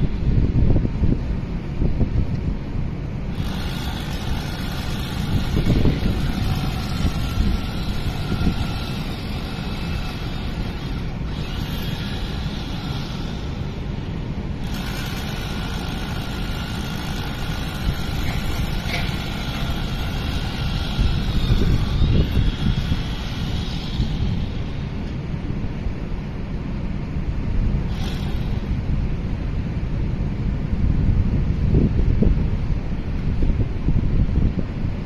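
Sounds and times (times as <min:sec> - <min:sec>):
wind buffeting microphone: 0:00.0 - 0:35.0
faint steady machine tones: 0:03.0 - 0:25.4, 0:27.7 - 0:29.5.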